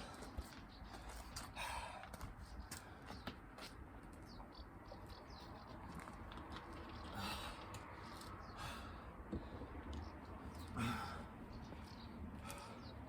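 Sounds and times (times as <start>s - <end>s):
person breathing hard: 8.5s - 9.8s, 10.8s - 11.4s.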